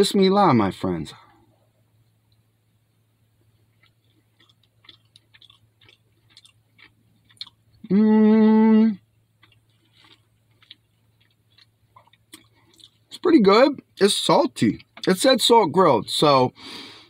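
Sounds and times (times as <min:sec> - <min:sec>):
chewing with wet mouth clicks: 0:03.4 - 0:07.9, 0:09.4 - 0:13.2.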